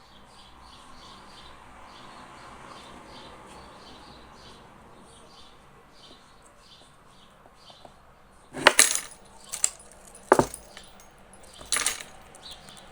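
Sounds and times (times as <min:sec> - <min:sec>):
sharp clinks and clatters: 0:08.6 - 0:12.9.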